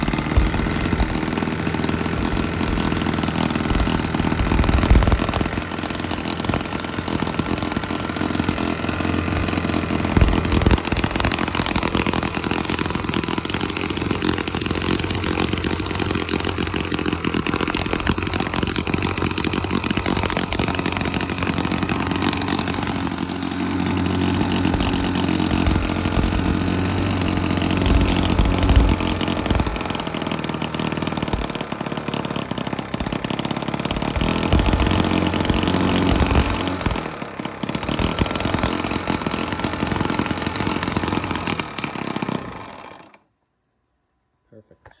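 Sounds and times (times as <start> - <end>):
model engine running: 0.0 - 43.3
low thumps: 9.3 - 30.0.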